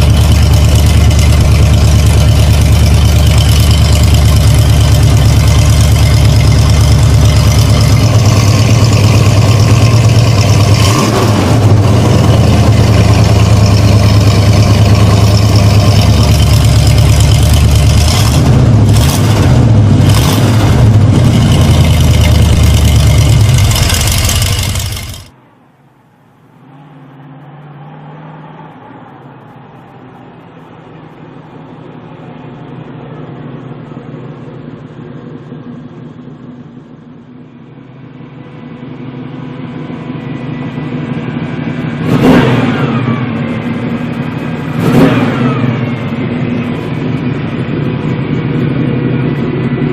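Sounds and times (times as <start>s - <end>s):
car engine revving: 0.0s - 25.3s, 38.2s - 49.9s
muffled engine hum: 0.0s - 49.9s.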